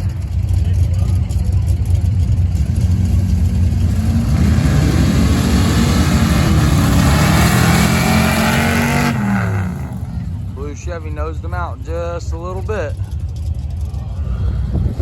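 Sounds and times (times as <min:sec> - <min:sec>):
trucks racing at full throttle: 0:00.0 - 0:15.0.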